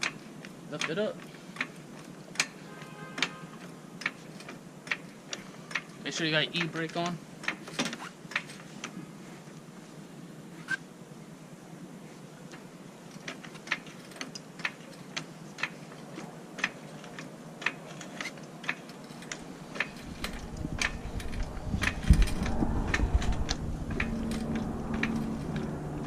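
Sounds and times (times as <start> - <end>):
rumbling handling noise: 12.5 - 26.0.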